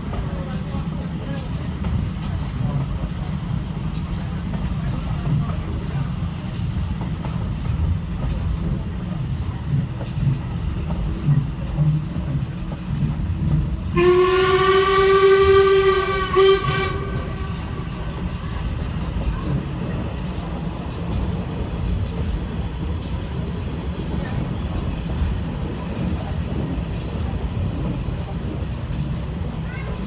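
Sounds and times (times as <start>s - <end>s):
steam locomotive working: 0.0s - 30.0s
steam locomotive whistle: 13.9s - 19.3s.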